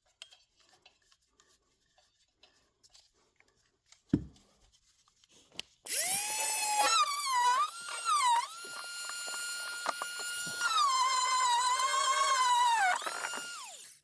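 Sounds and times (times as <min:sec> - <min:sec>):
power drill whining: 0:05.9 - 0:14.0.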